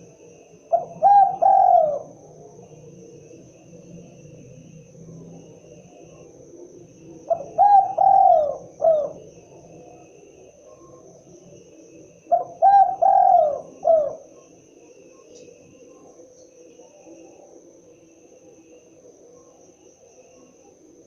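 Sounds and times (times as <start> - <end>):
dove cooing: 0.0 - 2.8, 7.1 - 11.1, 12.1 - 19.7.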